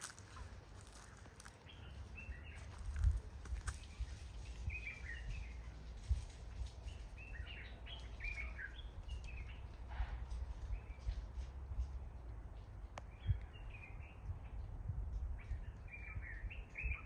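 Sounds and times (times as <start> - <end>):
birds chirping: 0.0 - 5.8, 6.8 - 9.9
steady low rumble: 0.0 - 8.0.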